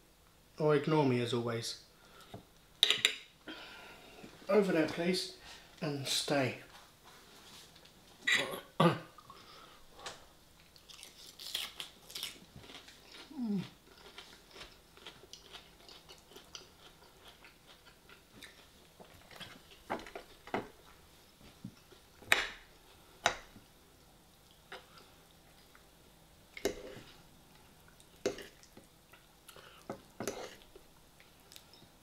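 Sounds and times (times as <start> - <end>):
chewing and crunching salad: 10.6 - 21.0, 23.9 - 31.9.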